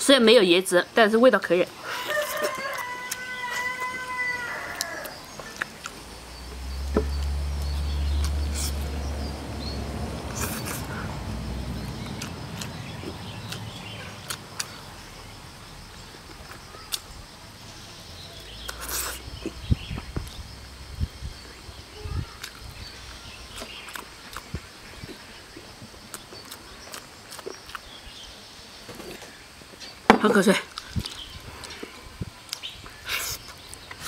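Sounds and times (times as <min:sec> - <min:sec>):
insect buzz: 0:01.7 - 0:34.0
rooster crowing: 0:01.9 - 0:05.3
low rumble: 0:06.0 - 0:16.0
chewing and lip-smacking: 0:12.0 - 0:14.8, 0:23.5 - 0:27.9.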